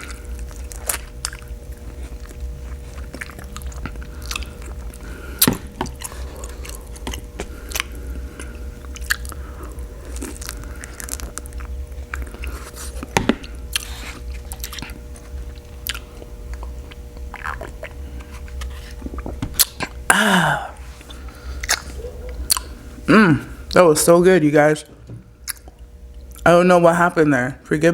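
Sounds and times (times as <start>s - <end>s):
wet chewing and mouth clicks: 0.0s - 5.1s, 5.8s - 20.0s, 21.0s - 22.8s, 25.4s - 26.4s
short falling vocal sound: 20.1s - 20.8s.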